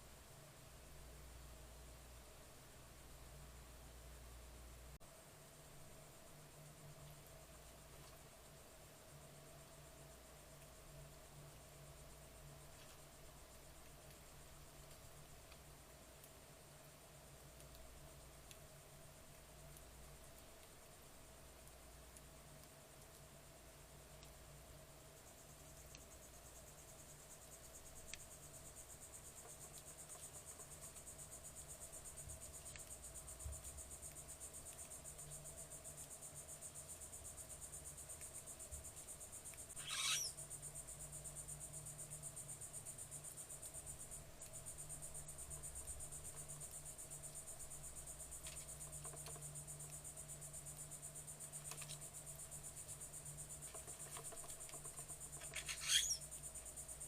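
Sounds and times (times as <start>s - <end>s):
low steady hum: 0.0s - 53.8s
crickets trilling: 5.1s - 57.0s
sharp falling bird call: 39.8s - 40.3s.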